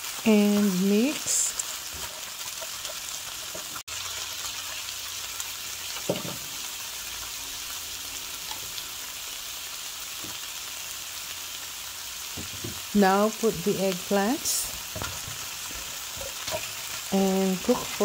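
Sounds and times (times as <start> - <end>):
meat sizzling in a skillet: 0.0 - 18.0
spatula stirring: 14.6 - 18.0.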